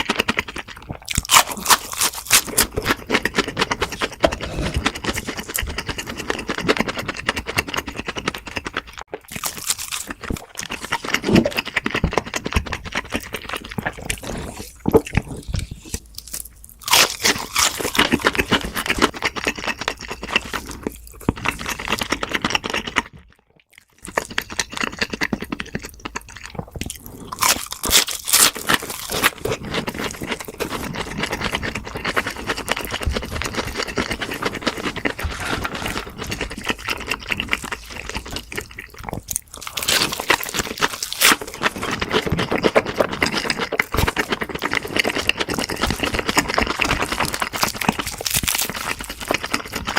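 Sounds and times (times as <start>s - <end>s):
crunching and chewing crisp food: 0.0s - 49.9s.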